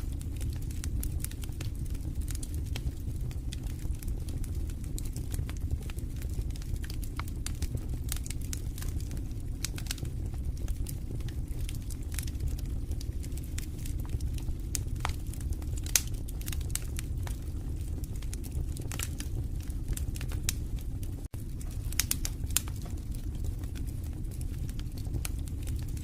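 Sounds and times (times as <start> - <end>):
burning logs crackling: 0.0 - 26.0
low rumble of flames: 0.0 - 26.0
sharp pops from fire: 0.1 - 26.0.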